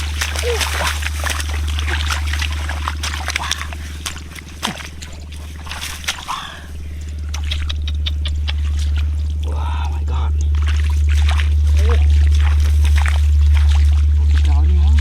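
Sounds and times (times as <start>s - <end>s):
low hum: 0.0s - 15.0s
splashing in muddy water: 0.0s - 15.0s
sharp clicks and slaps: 7.3s - 9.1s.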